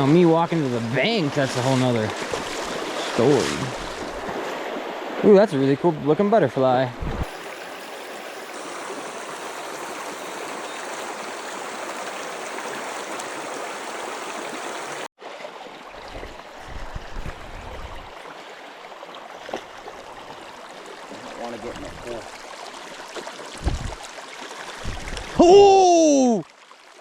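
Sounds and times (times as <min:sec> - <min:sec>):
river rushing over riffles: 0:00.6 - 0:05.2, 0:07.2 - 0:15.1
low thumps: 0:23.6 - 0:24.0, 0:24.8 - 0:25.4.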